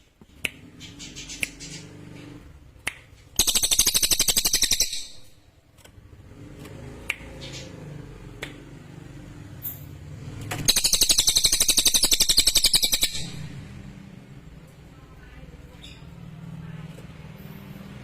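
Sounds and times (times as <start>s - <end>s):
bird singing rattling trill: 3.4s - 5.4s, 10.6s - 13.6s.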